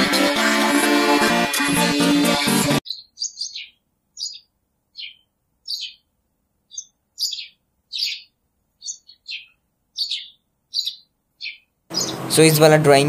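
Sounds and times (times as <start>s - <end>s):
bird chirping: 2.8s - 12.7s.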